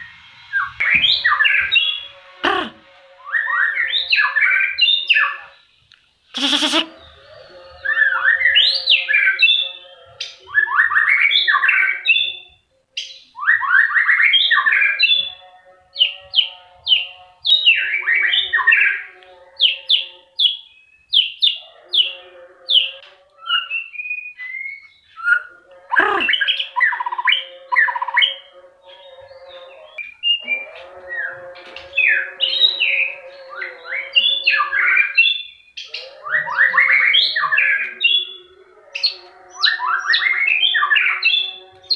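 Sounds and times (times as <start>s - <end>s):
bird singing whistles and chirps: 7.0s - 15.4s, 22.8s - 25.5s.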